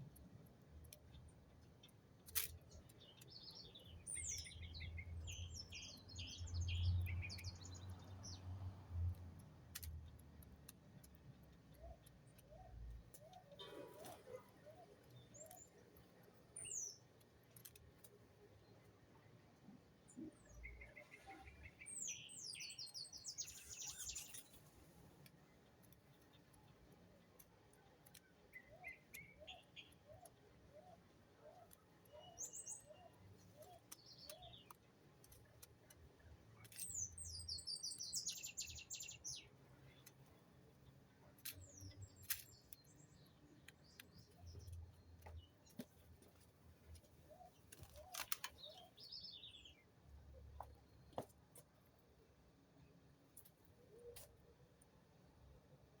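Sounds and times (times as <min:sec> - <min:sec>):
birds twittering: 0:20.3 - 0:24.6.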